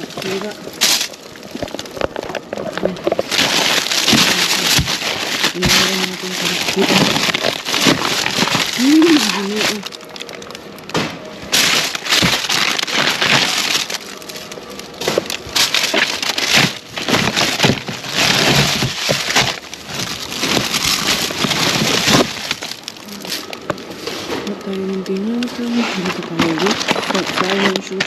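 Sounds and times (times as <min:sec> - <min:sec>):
plastic bags rustling and crinkling: 0:00.0 - 0:28.0.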